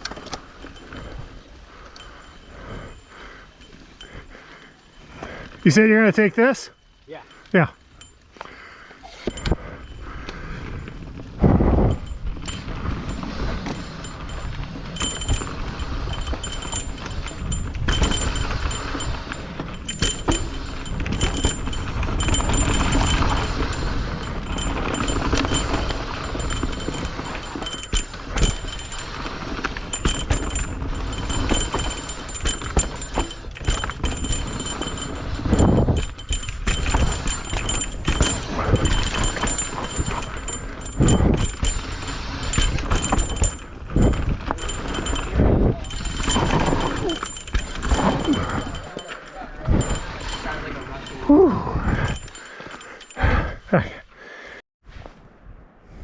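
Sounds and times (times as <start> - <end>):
bike clicks and rattles: 0.0 - 53.6
bike tyre noise on trail: 0.0 - 53.6
heavy bike jolts: 0.0 - 54.0.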